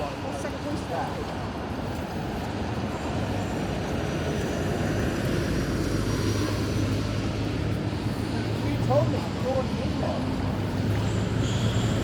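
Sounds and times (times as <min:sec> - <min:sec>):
road traffic hum: 0:04.3 - 0:12.0.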